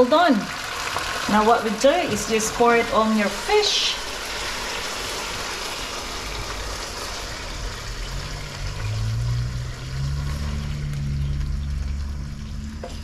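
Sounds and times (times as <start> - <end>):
sauce sizzling and trickling: 0.0 - 13.0
low steady hum: 7.4 - 13.0.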